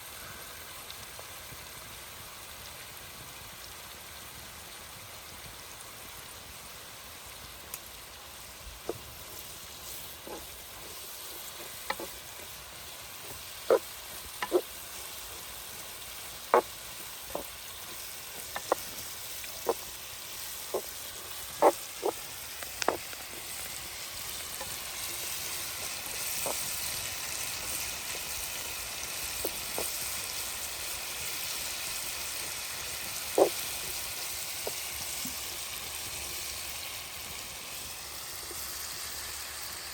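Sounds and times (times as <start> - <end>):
steady hiss: 0.0 - 39.9
sharp pops and crackles: 8.8 - 31.9, 33.2 - 35.5.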